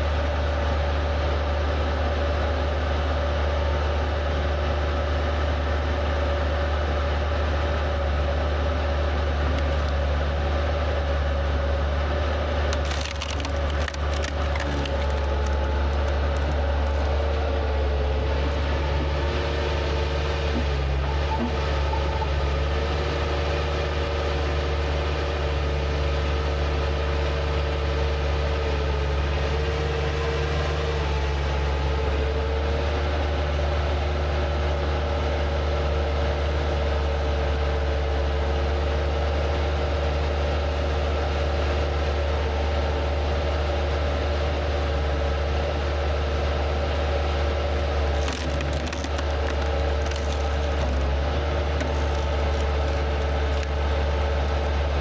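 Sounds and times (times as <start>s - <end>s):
skid steer engine running: 0.0s - 55.0s
wood splitting cracks: 9.4s - 10.2s, 12.5s - 21.8s, 47.6s - 55.0s.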